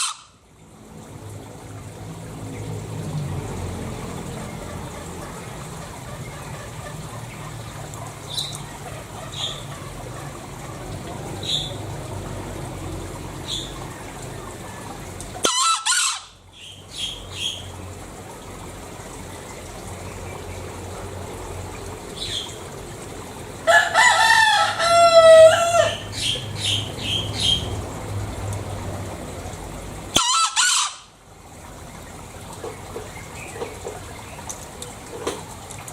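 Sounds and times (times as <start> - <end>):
junglefowl calling: 0.0 - 0.4, 4.6 - 11.8, 13.5 - 17.7, 23.7 - 27.7, 30.1 - 31.2.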